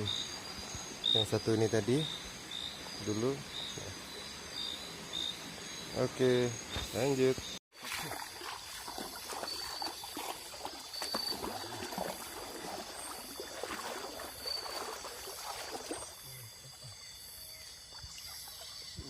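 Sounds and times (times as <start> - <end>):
river water splashing: 6.2 - 19.0.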